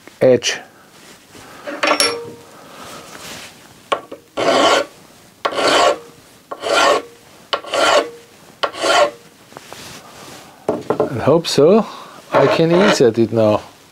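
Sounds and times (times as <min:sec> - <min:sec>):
hand file rasping: 0:04.4 - 0:09.2, 0:12.3 - 0:13.0.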